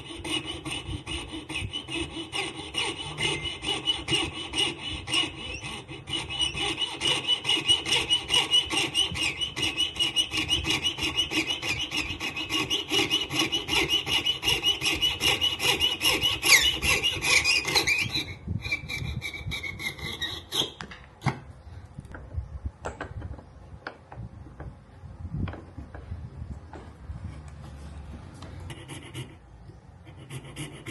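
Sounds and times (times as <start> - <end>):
hand rasping bone: 0.0 - 20.8.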